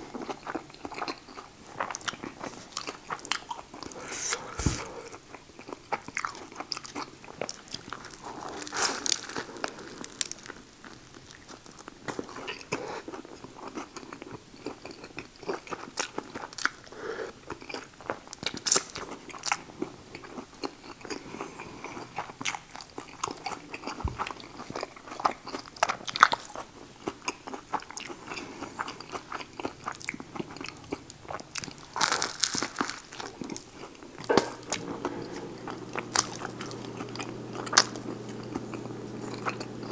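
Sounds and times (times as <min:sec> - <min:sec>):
man chewing food: 0:00.0 - 0:39.9
crunching and wet smacking: 0:22.4 - 0:34.8.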